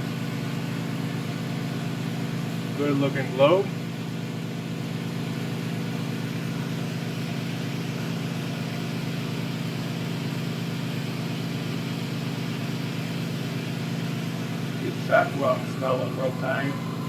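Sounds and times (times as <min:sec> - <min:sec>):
burner and blower hum: 0:00.0 - 0:10.4, 0:11.0 - 0:17.0.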